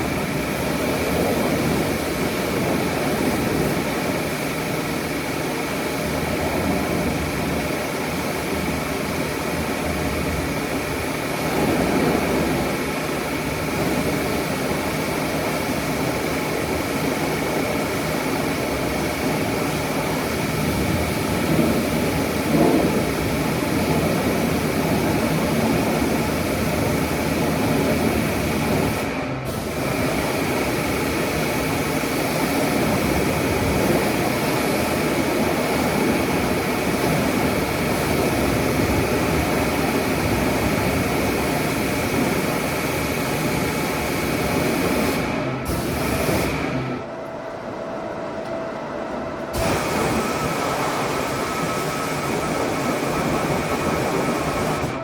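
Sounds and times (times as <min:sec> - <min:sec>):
car wash equipment running: 0:00.0 - 0:55.0
high whine: 0:32.8 - 0:55.0.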